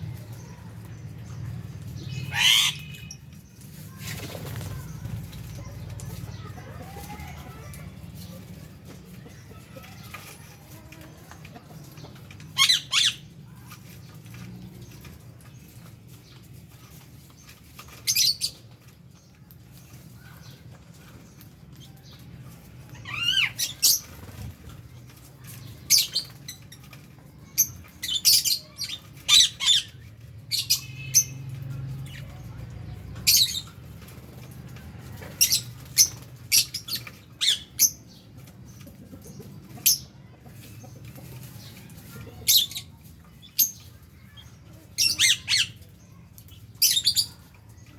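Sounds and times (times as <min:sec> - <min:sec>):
lovebirds squawking: 0:02.0 - 0:03.3, 0:12.5 - 0:13.4, 0:23.0 - 0:24.5, 0:27.6 - 0:31.5.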